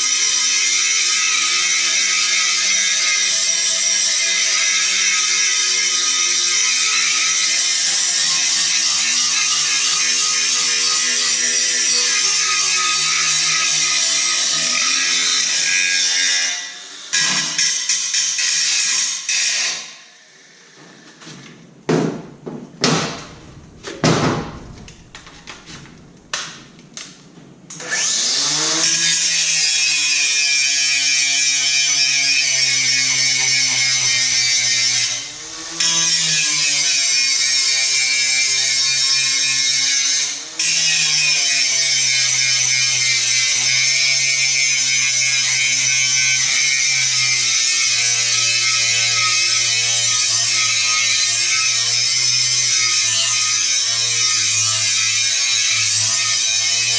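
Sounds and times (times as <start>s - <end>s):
angle grinder grinding steel: 0.0s - 20.6s, 27.7s - 56.9s
sharp knocks and clanks: 20.8s - 27.6s.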